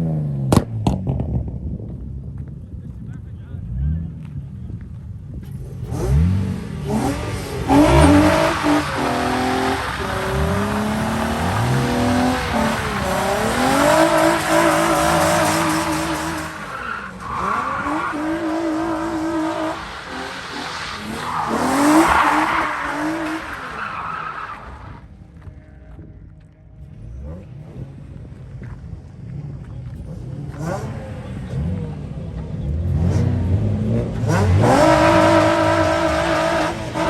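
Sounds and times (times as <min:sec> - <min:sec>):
sports car engine revving: 0:03.6 - 0:23.8, 0:26.9 - 0:37.0.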